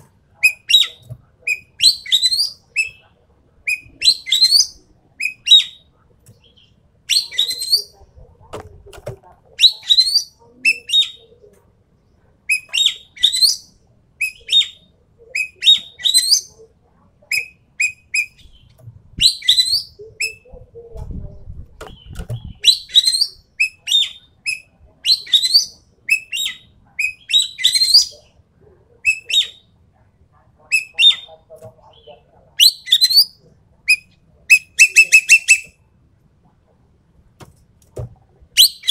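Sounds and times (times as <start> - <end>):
bird whistled calls: 0.4 - 3.0, 3.7 - 5.8, 19.2 - 20.4, 22.6 - 28.1, 32.6 - 35.8, 38.6 - 38.9.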